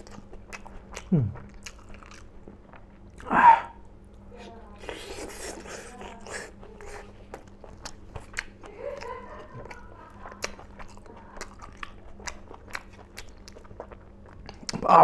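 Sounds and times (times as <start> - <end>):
wet crunchy chewing: 0.0 - 3.3, 4.8 - 15.0
person humming: 1.1 - 1.4.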